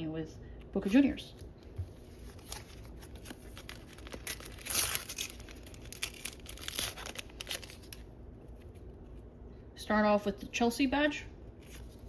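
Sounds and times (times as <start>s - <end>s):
wrapper crinkling: 2.0s - 8.7s
sticker packet tearing: 2.3s - 8.0s.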